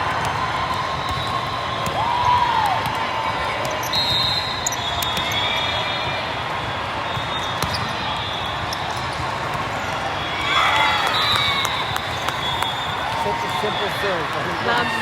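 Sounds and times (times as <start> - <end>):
crowd noise: 0.0 - 15.0
volleyball bouncing on gym floor: 0.1 - 3.9.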